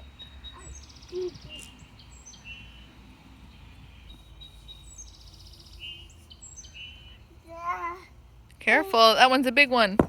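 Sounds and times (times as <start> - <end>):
songbird singing trilled phrases: 0.0 - 7.5.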